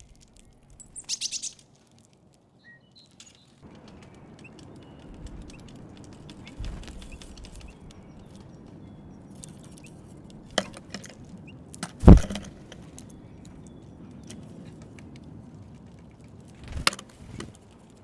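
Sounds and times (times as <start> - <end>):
birds pecking seeds: 0.0 - 18.0
heavy thump: 12.0 - 12.8.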